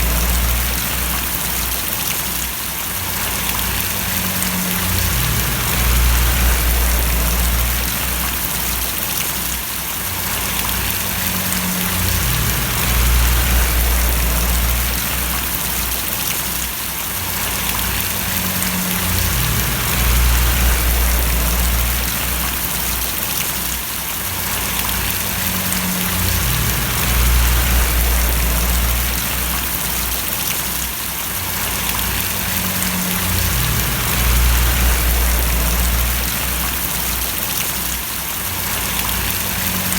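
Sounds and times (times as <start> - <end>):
low rumble: 0.0 - 2.0, 3.1 - 9.0, 10.4 - 16.2, 17.4 - 23.2, 24.6 - 30.5, 31.6 - 37.4
rain falling and splashing: 0.0 - 39.9.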